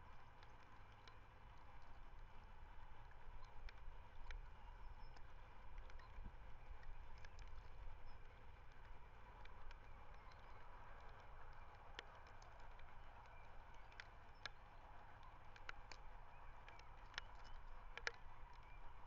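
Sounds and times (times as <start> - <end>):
faint clicks: 0.2 - 19.0.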